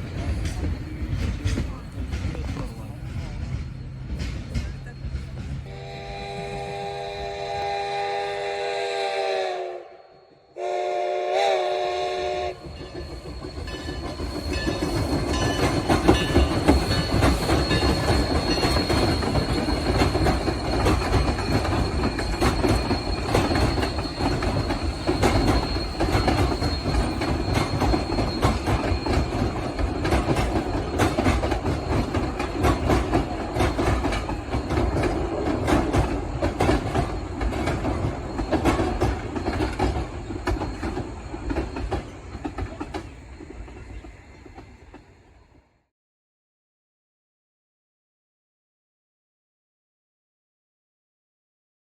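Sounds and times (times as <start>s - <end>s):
train wheels clickety-clack: 0.0s - 6.9s, 11.8s - 45.1s
steam locomotive chime whistle: 3.8s - 45.5s
wheel squeal: 12.5s - 45.0s.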